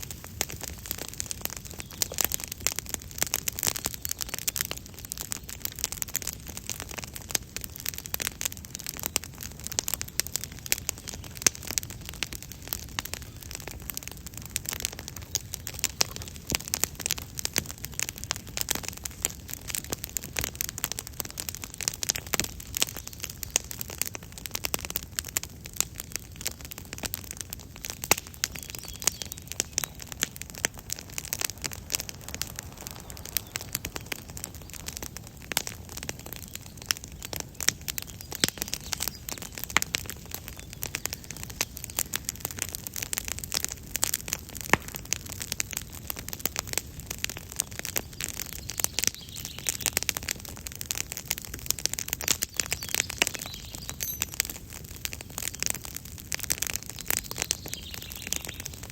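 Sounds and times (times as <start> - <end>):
campfire crackling and popping: 0.0 - 58.9.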